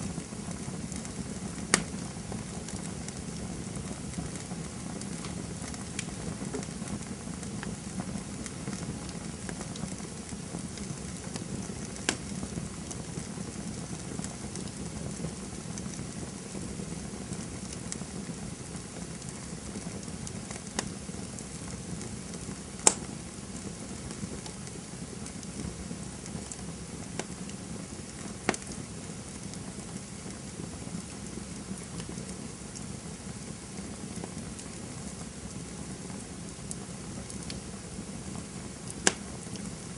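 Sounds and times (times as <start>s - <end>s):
campfire crackling: 0.0s - 39.9s
sharp pops from fire: 0.0s - 39.9s.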